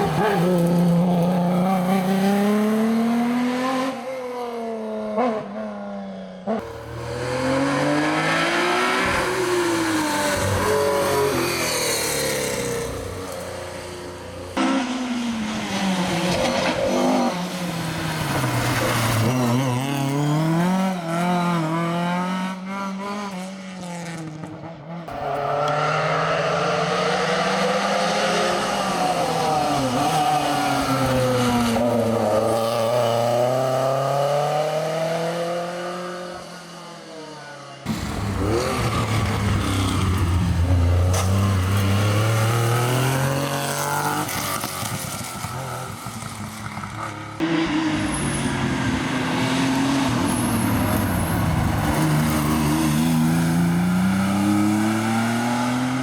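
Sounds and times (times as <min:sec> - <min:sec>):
rally car engines revving: 0:00.0 - 0:05.5, 0:06.4 - 0:56.0.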